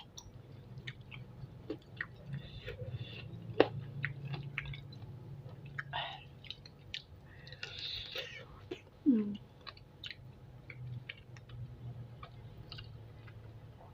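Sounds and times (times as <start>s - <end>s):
faint low hum: 0.0s - 13.9s
wet chewing and crunching: 0.0s - 13.9s.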